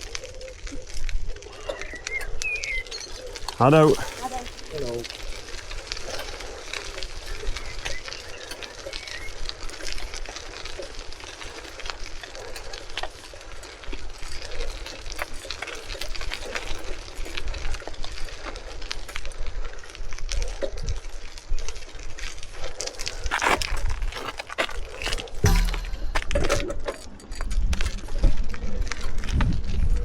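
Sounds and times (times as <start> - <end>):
small clicks and rattles: 0.0 - 29.4
wind rumble on microphone: 27.3 - 30.0.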